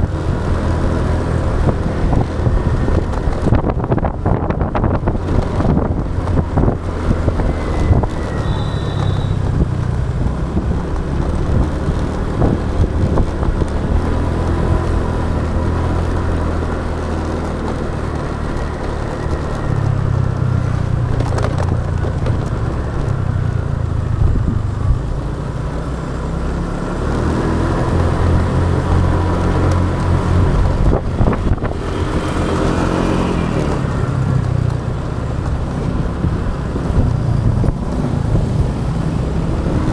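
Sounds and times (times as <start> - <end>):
motorbike engine running: 0.0 - 39.9
passing traffic: 0.0 - 39.9
wind rushing: 1.6 - 10.9.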